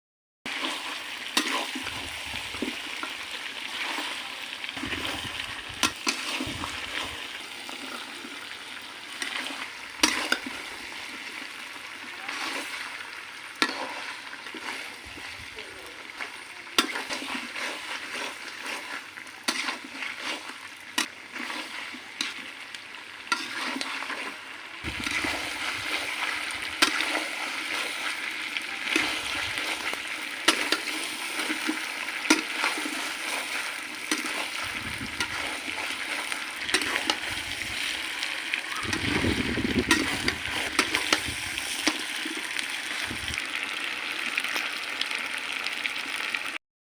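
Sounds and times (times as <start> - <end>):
chicken sizzling in a pan: 0.5 - 46.6
utensil scraping a pan: 3.7 - 7.3, 9.1 - 10.8, 12.2 - 13.0, 13.6 - 15.2, 16.1 - 22.5, 23.3 - 43.0.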